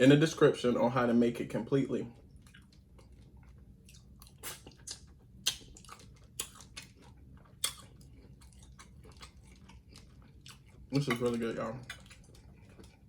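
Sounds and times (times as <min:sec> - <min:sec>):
chewing with wet mouth smacks: 0:01.6 - 0:13.0.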